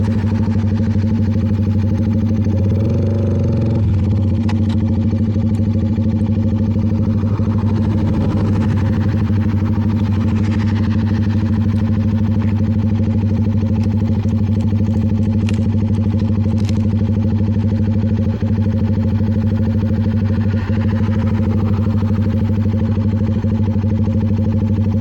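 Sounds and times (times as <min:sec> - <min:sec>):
motorcycle engine running steadily: 0:00.0 - 0:25.0.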